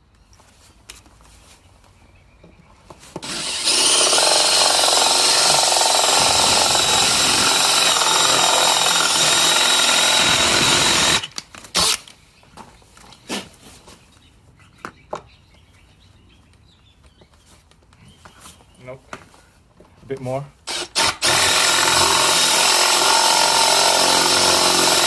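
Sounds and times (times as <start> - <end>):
power drill boring into wood: 3.2 - 12.1, 20.7 - 25.0.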